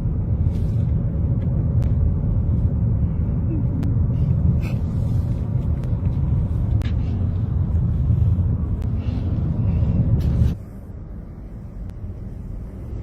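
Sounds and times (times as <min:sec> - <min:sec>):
vehicle driving rumble: 0:00.0 - 0:13.0.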